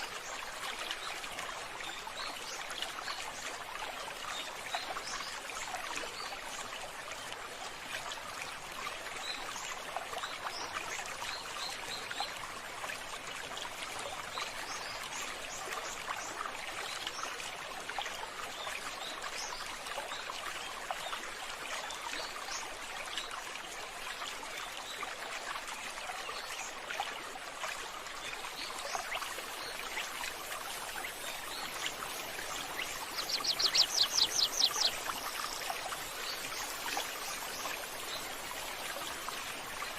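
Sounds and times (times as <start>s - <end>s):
water running: 29.4s - 39.2s
small high chirps: 32.4s - 35.0s.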